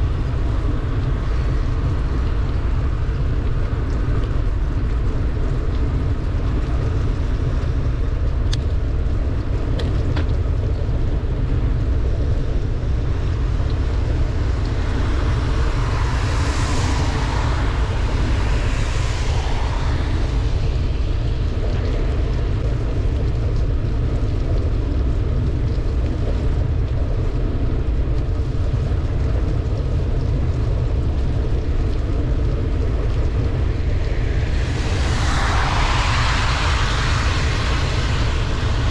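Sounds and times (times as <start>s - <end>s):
wind buffeting microphone: 0.0s - 38.9s
wet hiss of tyres on road: 12.9s - 22.6s, 32.8s - 38.9s.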